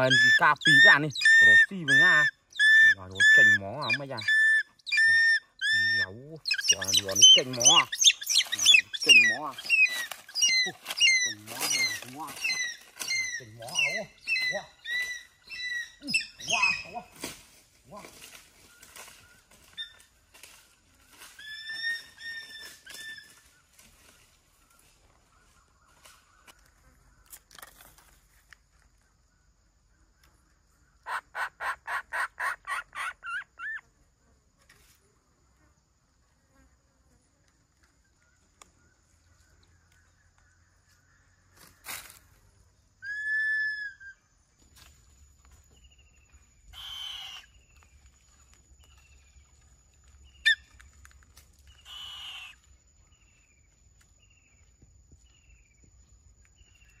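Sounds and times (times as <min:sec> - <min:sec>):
harsh rasping bird calls: 0:00.0 - 0:17.3, 0:30.9 - 0:33.8, 0:46.6 - 0:47.9, 0:51.7 - 0:53.3
harsh hissing bird calls: 0:46.7 - 0:47.6, 0:51.8 - 0:52.6.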